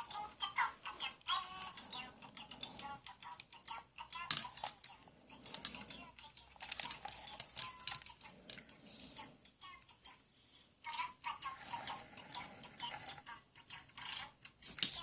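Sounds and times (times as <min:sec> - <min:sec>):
plastic toy tools clicking: 0:04.1 - 0:08.6.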